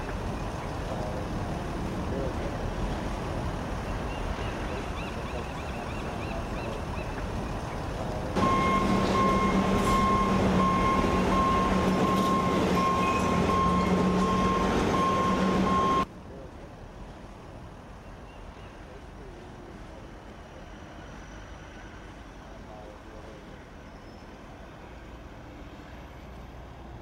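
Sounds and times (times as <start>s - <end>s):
distant rumble: 0.0s - 16.1s
heavy vehicle engine running: 0.0s - 16.1s
wind: 0.0s - 27.0s
reversing alarm beeping: 8.4s - 16.1s.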